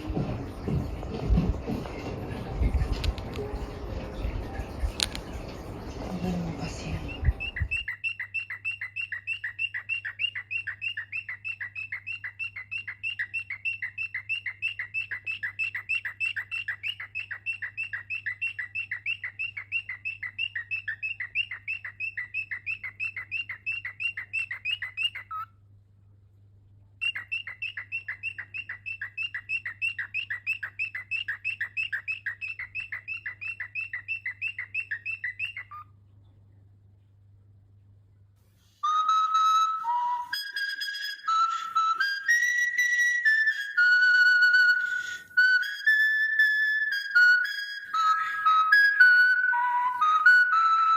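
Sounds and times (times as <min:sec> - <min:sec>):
faint low hum: 0:00.0 - 0:50.9
cockatiel chirping: 0:06.8 - 0:25.5, 0:27.0 - 0:35.9.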